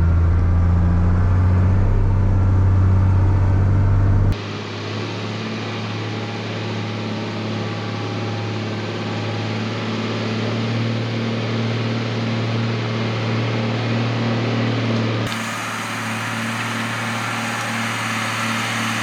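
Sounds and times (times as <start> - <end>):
truck diesel engine hum: 0.0 - 4.4, 15.3 - 19.0.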